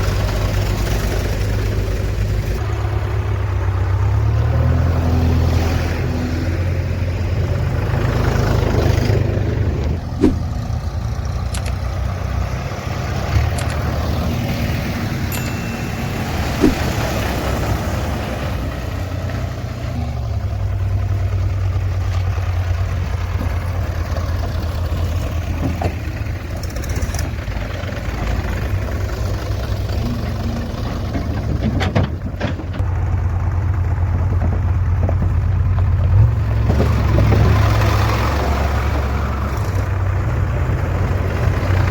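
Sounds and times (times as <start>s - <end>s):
heavy diesel engine running: 0.0s - 41.9s
short sharp knocks: 10.2s - 10.5s, 16.6s - 17.0s.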